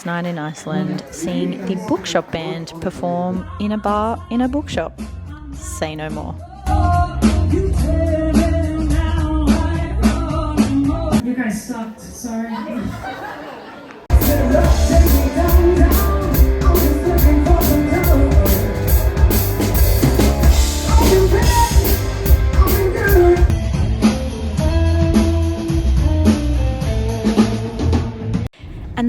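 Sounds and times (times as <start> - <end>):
rock band with singing: 4.8 - 11.2, 14.1 - 28.5.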